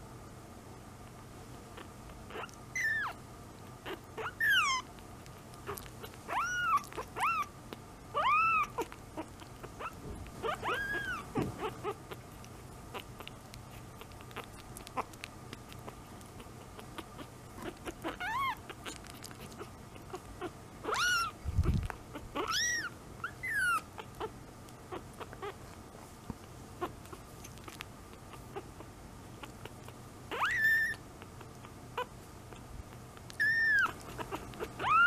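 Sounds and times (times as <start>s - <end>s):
kitten mewing: 1.7s - 3.2s, 3.8s - 4.9s, 5.6s - 7.5s, 8.1s - 25.7s, 26.8s - 32.6s, 33.2s - 35.0s
small clicking sounds: 11.0s - 20.3s, 24.0s - 30.0s, 32.5s - 35.0s.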